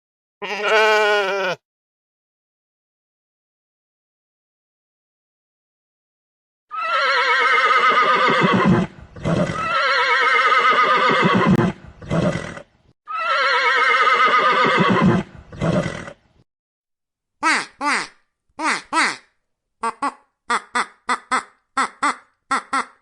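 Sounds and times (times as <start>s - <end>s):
horse whinnying: 0.4s - 1.6s, 6.7s - 16.2s
horse breathy snort: 8.5s - 9.7s, 11.4s - 12.7s, 14.9s - 16.2s.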